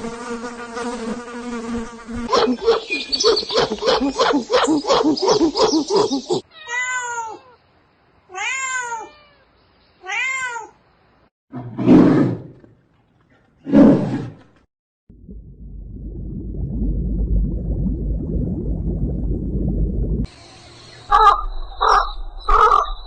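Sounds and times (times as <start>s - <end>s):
rapid pulsing animal sound: 2.3s - 6.4s
rasping animal calls: 2.3s - 6.4s
cat-like meowing calls: 6.5s - 7.6s, 8.3s - 10.8s.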